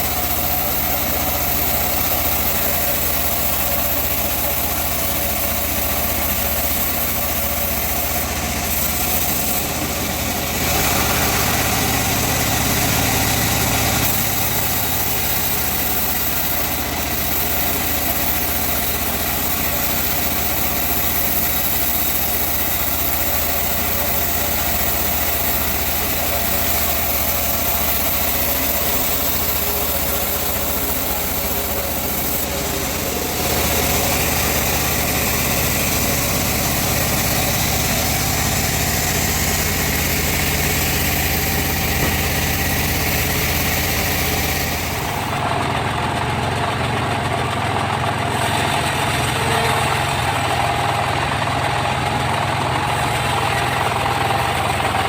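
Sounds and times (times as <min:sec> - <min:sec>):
engine-driven sawmill running: 0:00.0 - 0:55.0.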